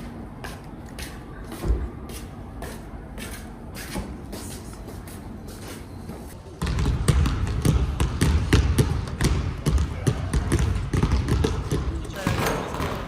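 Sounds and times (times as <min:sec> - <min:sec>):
basketballs bouncing on hardwood: 0:06.5 - 0:13.0.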